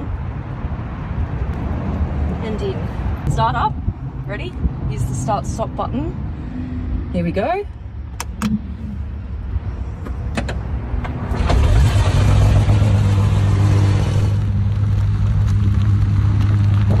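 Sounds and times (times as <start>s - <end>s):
car engine starting and idling: 8.0s - 17.0s
clicks: 8.1s - 8.7s.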